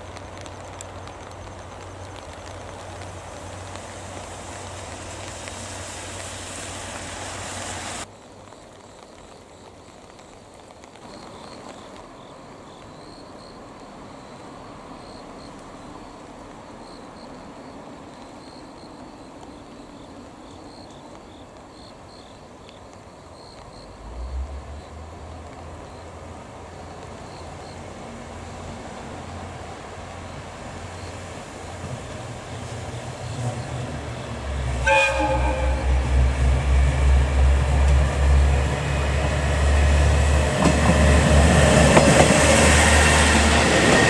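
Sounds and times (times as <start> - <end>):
loud steady hiss: 0.0 - 16.5, 25.4 - 44.0
insects chirping: 0.0 - 44.0
low rumble: 33.2 - 40.5.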